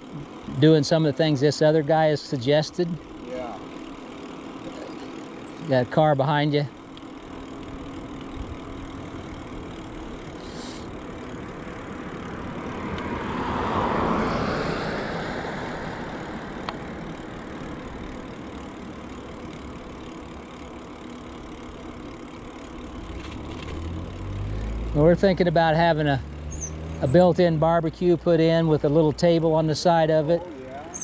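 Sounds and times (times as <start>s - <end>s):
car passing: 8.6s - 19.1s, 22.9s - 31.0s.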